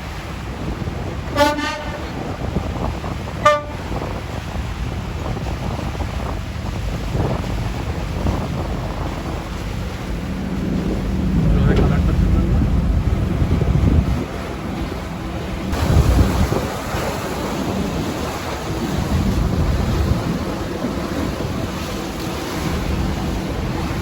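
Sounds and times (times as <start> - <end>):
steady low rumble: 0.0 - 24.0
boat horn blasts: 0.9 - 4.5.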